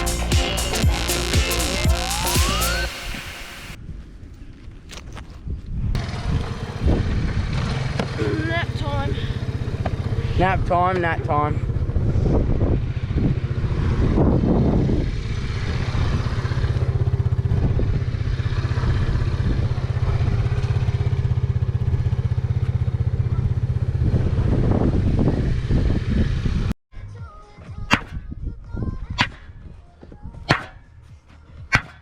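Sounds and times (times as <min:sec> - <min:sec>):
small motorbike engine running: 0:06.0 - 0:26.7.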